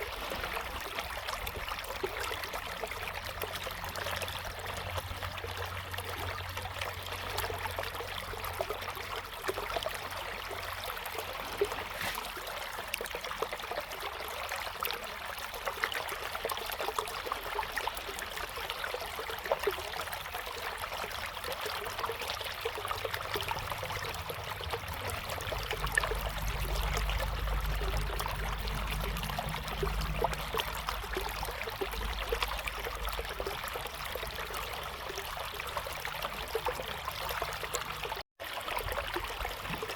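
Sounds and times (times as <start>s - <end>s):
river water flowing: 0.0s - 39.9s
low rumble: 23.2s - 33.6s.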